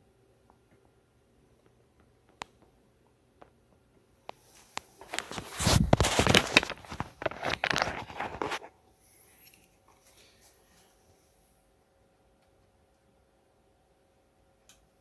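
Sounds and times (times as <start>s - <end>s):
cable connector clicks and scrapes: 4.8s - 8.7s.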